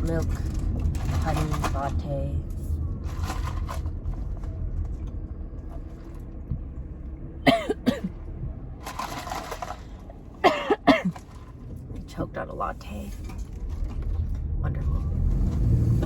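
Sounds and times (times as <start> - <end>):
car interior rumble: 0.0 - 16.0
woman coughing and sputtering: 7.4 - 8.1, 10.4 - 11.3.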